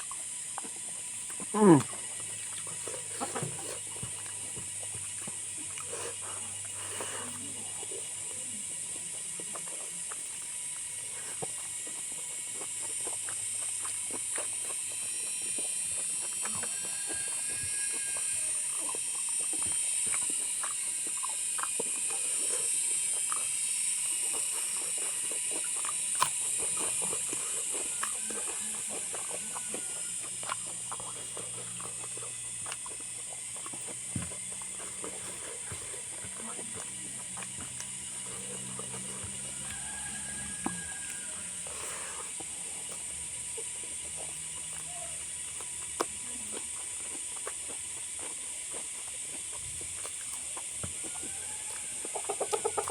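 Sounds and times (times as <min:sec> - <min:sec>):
chewing clicks and smacks: 0:00.0 - 0:52.9.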